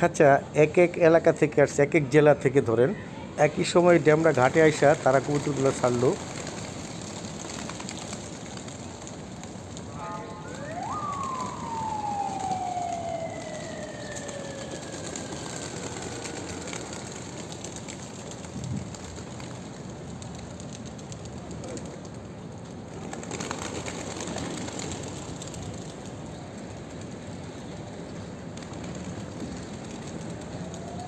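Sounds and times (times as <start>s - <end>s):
pigeon wingbeats rushing: 4.1s - 9.9s, 10.8s - 22.3s, 22.9s - 27.6s, 28.4s - 31.0s
siren wailing: 9.9s - 17.0s.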